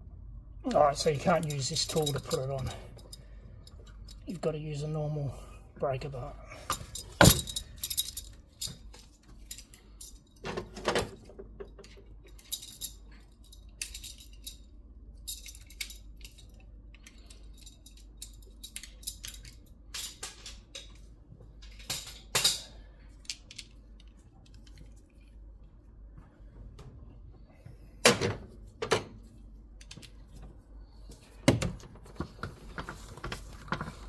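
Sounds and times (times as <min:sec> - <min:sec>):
metal hand tools clinking: 0:01.3 - 0:04.3.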